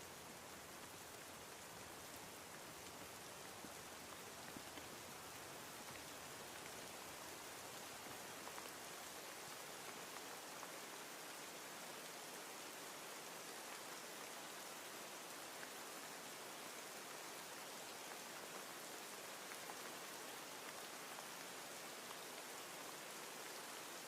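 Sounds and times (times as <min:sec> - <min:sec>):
faint rain hiss: 0:00.0 - 0:24.0.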